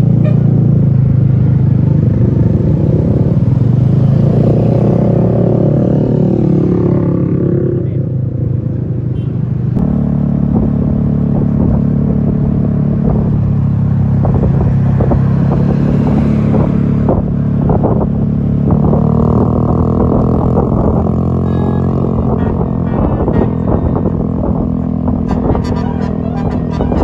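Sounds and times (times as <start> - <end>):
bus engine droning: 0.0 - 5.7, 6.3 - 27.0.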